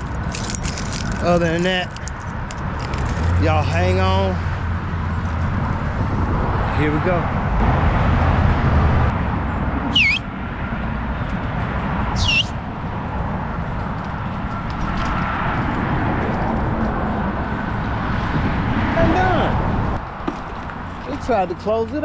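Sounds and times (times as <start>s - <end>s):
bird calls: 9.9s - 10.3s, 12.2s - 12.6s.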